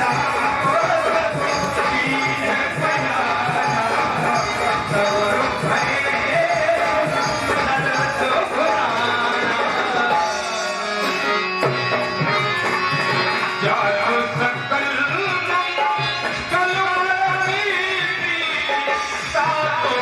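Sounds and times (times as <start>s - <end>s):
person singing: 0.0s - 11.4s
tabla playing: 0.0s - 20.0s.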